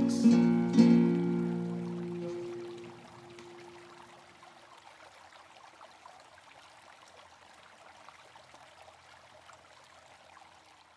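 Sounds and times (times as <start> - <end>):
acoustic guitar note: 0.0 - 3.7
river water flowing: 0.0 - 10.9
small splashes: 0.0 - 10.9.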